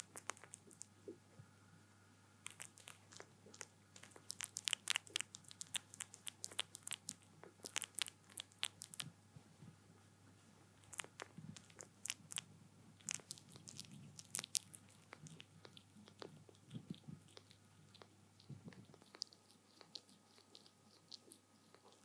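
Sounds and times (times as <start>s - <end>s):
wet sucking smacks and clicks: 0.0s - 1.0s, 2.4s - 9.2s, 10.8s - 22.0s
kittens suckling: 0.0s - 1.2s, 2.4s - 9.2s, 10.7s - 22.0s.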